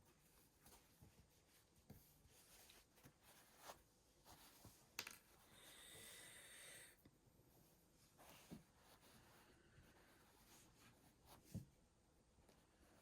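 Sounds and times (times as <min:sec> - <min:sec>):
fabric and thread rustling: 0:00.0 - 0:05.5, 0:07.5 - 0:11.8.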